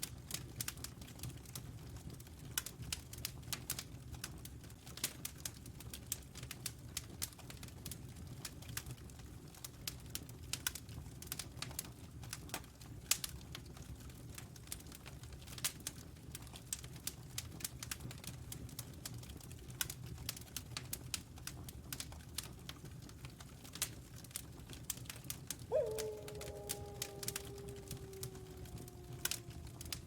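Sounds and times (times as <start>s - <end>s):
distant wolf howling: 25.7s - 30.0s
wood fire crackling: 25.8s - 30.0s.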